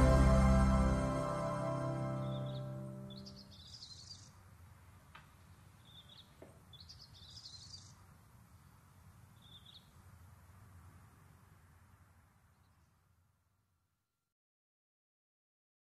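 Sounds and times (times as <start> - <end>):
low background hiss: 0.0 - 14.1
faint bird chirping: 1.4 - 4.6, 5.4 - 10.3, 12.4 - 13.2.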